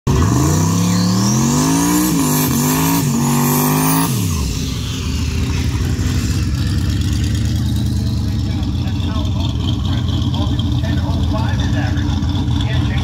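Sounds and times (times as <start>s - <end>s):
car engine revving hard: 0.1s - 13.0s
thin whine: 4.2s - 6.8s.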